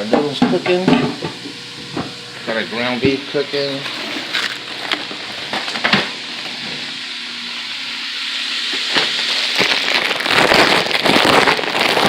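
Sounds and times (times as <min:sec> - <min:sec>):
beef sizzling in a pot: 0:00.0 - 0:12.0.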